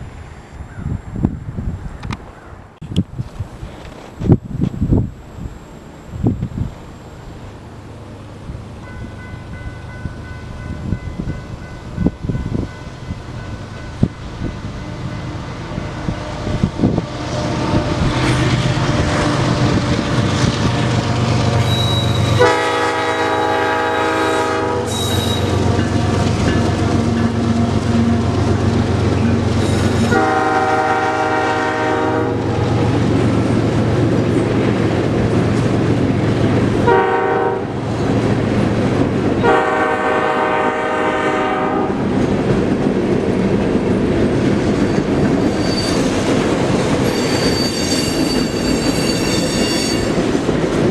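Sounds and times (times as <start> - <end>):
train on rails: 0.0 - 50.9
diesel locomotive running: 2.8 - 50.9
train air horn blasts: 21.6 - 26.0, 29.6 - 32.8, 36.8 - 37.8, 39.4 - 42.0.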